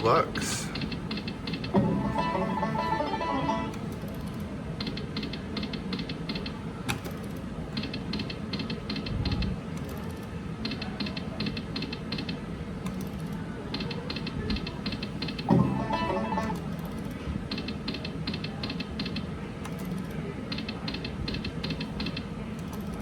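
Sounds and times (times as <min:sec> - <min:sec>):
slot machine ticking: 0:00.0 - 0:04.1, 0:13.8 - 0:16.8
low casino din: 0:00.0 - 0:23.0.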